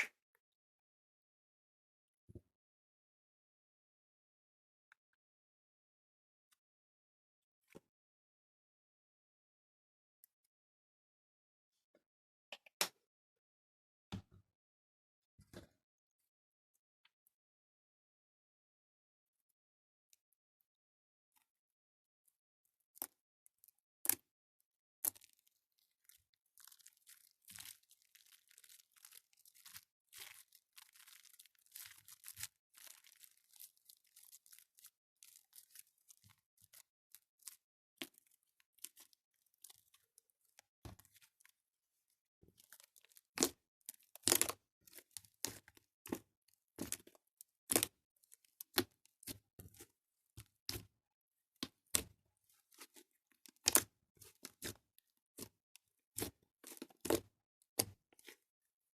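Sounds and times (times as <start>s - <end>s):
slime squishing with clicks and pops: 25.0s - 41.5s, 42.6s - 50.9s, 51.6s - 54.8s, 55.4s - 58.4s.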